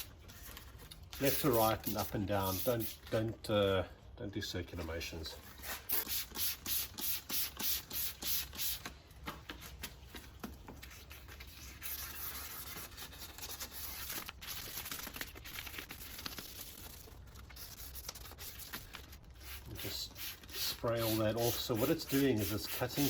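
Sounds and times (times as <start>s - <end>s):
sandpaper rasping on plastic: 1.2s - 3.0s, 11.0s - 14.2s, 17.5s - 23.0s.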